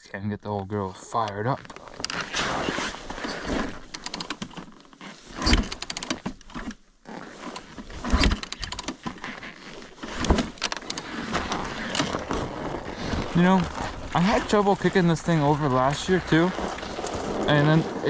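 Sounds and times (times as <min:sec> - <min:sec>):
clicks and rattles: 0:07.5 - 0:09.3.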